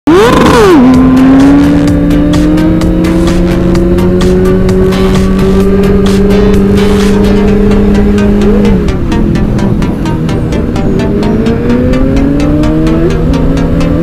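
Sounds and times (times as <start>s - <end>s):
motorcycle engine accelerating: 0.1s - 14.0s
steady engine tone: 0.1s - 14.0s.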